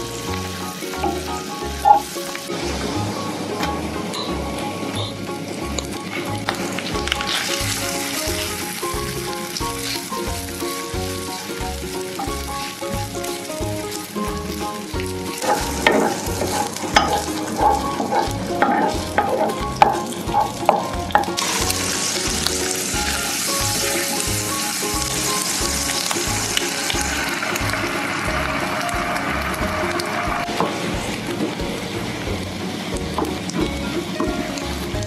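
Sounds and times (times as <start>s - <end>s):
egg sizzling in hot oil: 0.0s - 35.0s
rice sizzling in a wok: 0.0s - 35.0s
wooden spatula scraping a wok: 15.3s - 24.3s.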